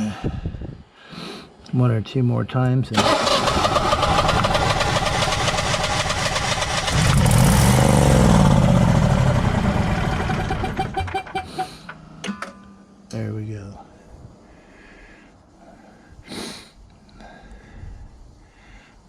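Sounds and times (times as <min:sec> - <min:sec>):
engine sputtering and winding down: 0:03.0 - 0:11.6
generator engine cranking and running: 0:03.0 - 0:12.0.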